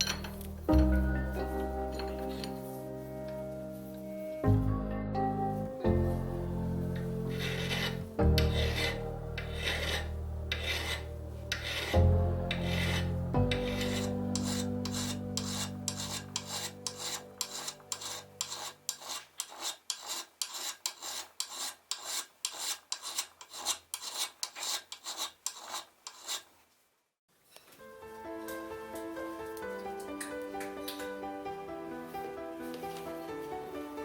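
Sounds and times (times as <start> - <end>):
file rasping on metal: 7.2 - 26.5.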